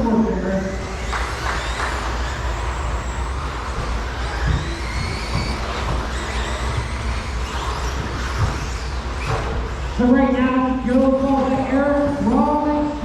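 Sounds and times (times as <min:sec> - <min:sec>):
steady low hum: 0:00.0 - 0:13.0
rc truck motor whines: 0:00.5 - 0:10.0.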